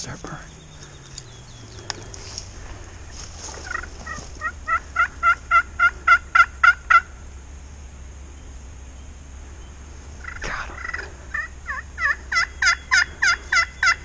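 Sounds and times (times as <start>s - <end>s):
turkey yelping: 0.5s - 7.2s, 10.2s - 14.0s.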